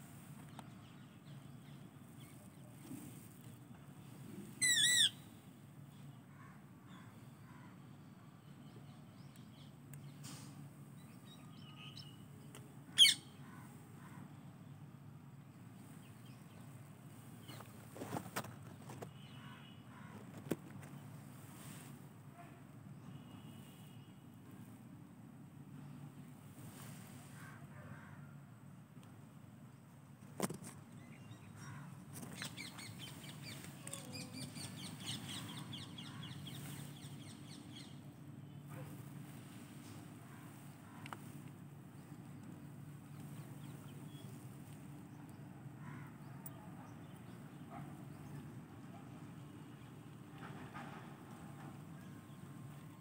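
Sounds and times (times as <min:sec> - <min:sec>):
low background hum: 0:00.0 - 0:53.0
small birds chirping: 0:00.4 - 0:06.3, 0:06.9 - 0:21.9, 0:30.4 - 0:50.3
small bird chirping: 0:04.6 - 0:05.3, 0:32.2 - 0:38.0.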